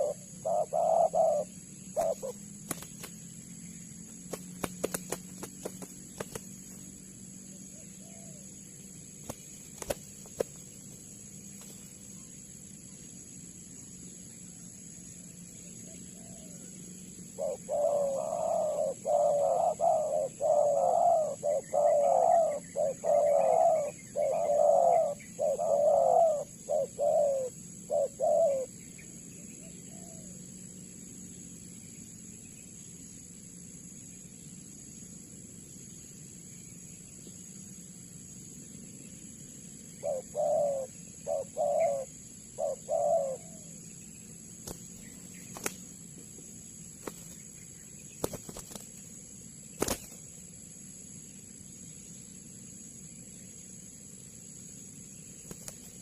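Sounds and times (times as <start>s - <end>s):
dove cooing: 0.0s - 3.0s, 7.7s - 8.5s, 15.8s - 28.8s, 29.6s - 30.4s, 40.0s - 43.8s.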